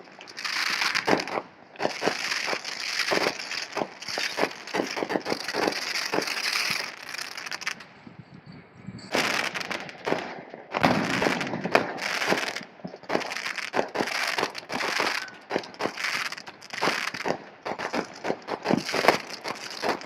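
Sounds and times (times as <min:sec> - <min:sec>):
fireworks crackling and popping: 0:00.0 - 0:08.0, 0:09.0 - 0:20.0.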